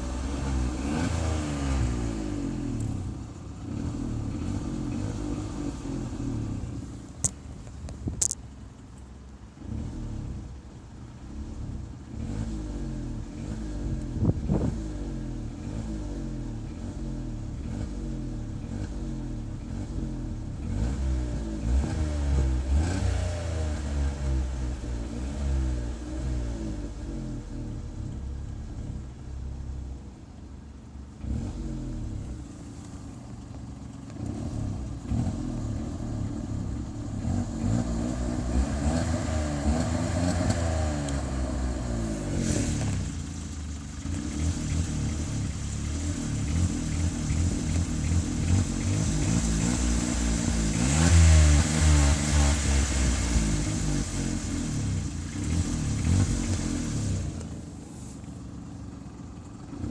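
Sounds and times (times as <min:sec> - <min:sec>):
car engine revving: 0:00.0 - 0:08.4, 0:09.5 - 0:30.0, 0:31.2 - 0:58.3.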